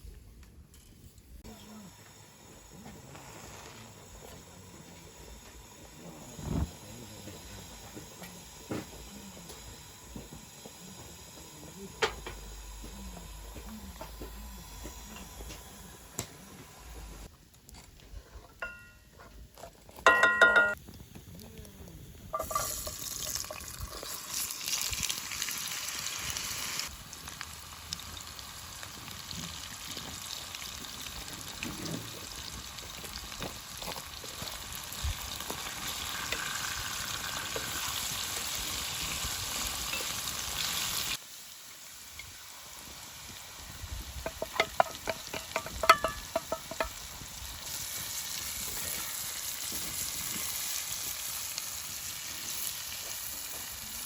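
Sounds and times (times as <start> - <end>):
food sizzling in a pan: 1.0 - 17.3, 18.2 - 54.0
stirring in a pan: 44.2 - 47.1.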